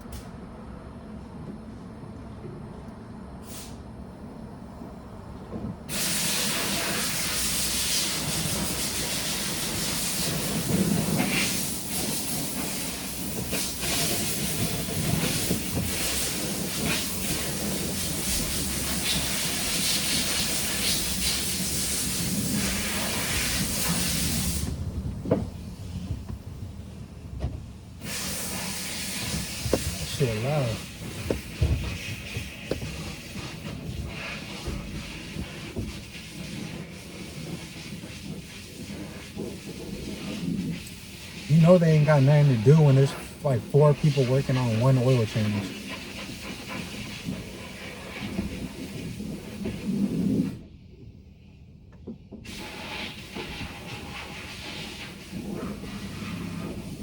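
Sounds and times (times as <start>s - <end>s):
pressurised jet hissing: 3.4s - 3.8s, 5.9s - 25.0s, 28.0s - 50.5s.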